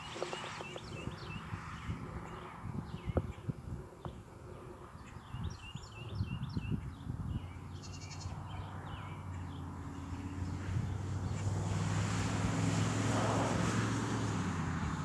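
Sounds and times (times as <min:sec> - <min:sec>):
small birds chirping: 0:00.0 - 0:11.5.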